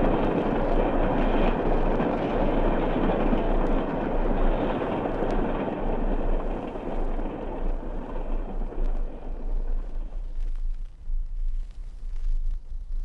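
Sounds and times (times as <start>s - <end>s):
steam locomotive running: 0.0s - 10.4s.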